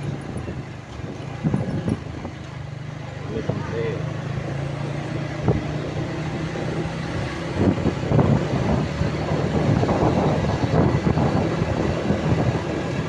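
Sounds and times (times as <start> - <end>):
thumps and rumble: 0.0 - 2.6
truck engine running: 0.0 - 13.0.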